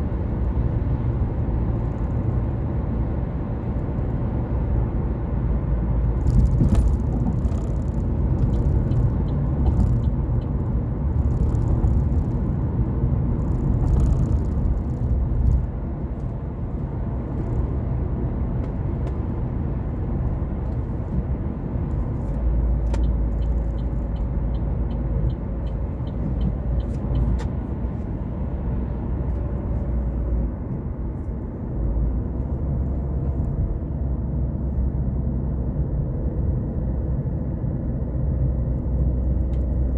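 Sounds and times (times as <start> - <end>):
car engine and tyres rumbling: 0.0 - 39.9
light evenly spaced ticks: 6.3 - 12.6, 22.9 - 27.4.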